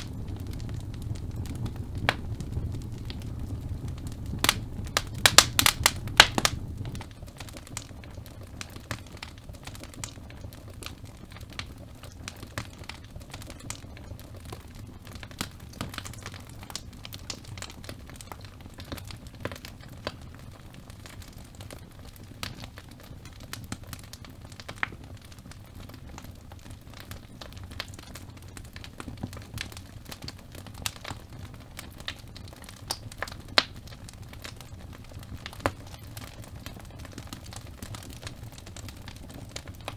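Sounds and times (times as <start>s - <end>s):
low steady rumble: 0.0s - 7.2s
wood fire crackling and popping: 0.0s - 39.9s.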